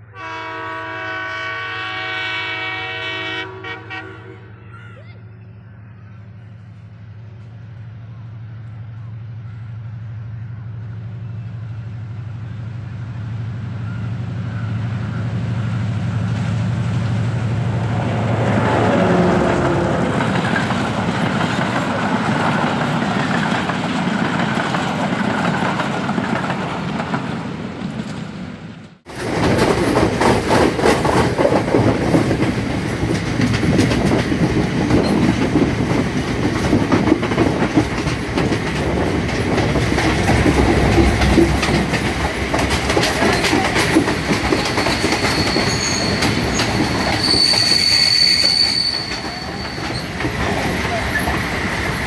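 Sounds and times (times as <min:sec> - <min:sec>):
diesel locomotive engine drone: 0:00.0 - 0:52.0
coaches rumbling past: 0:09.3 - 0:23.3, 0:37.7 - 0:47.5
wheels clacking over rail joints: 0:15.6 - 0:52.0.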